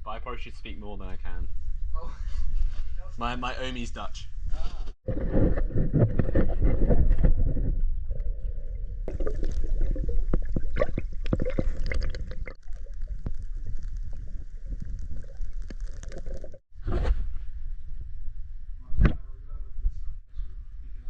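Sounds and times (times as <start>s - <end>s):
water sloshing and gurgling: 5.0s - 16.7s
heavy low rumble: 6.5s - 21.0s
small clicks and splashes: 8.1s - 16.6s.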